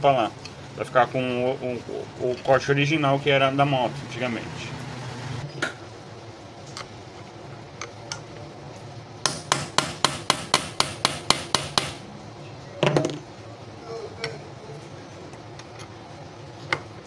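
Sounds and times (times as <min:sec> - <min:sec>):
hammer tapping metal: 0:09.2 - 0:12.1.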